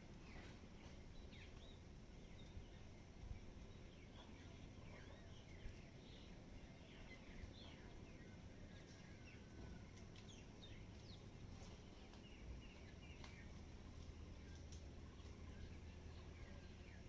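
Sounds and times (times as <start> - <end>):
low background rumble: 0.0 - 17.0
small birds chirping: 0.0 - 17.0.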